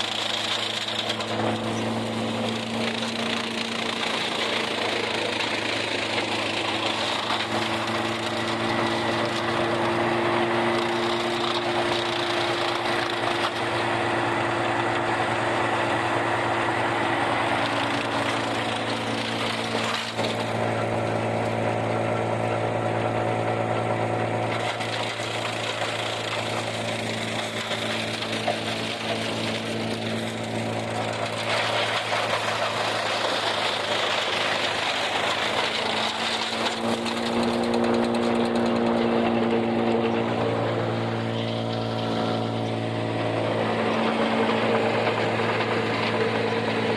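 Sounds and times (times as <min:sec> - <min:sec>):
tractor engine running under load: 0:00.0 - 0:46.9.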